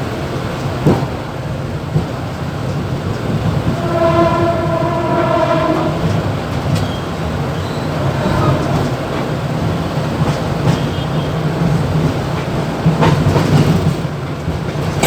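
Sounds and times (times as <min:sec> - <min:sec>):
train running rumble: 0:00.0 - 0:15.0
train horn: 0:03.3 - 0:09.0.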